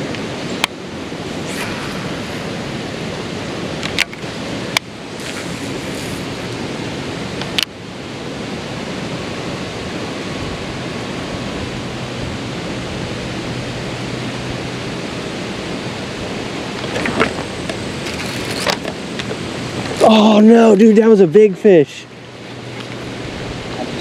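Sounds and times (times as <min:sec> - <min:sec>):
creek water rushing: 0:01.0 - 0:07.6.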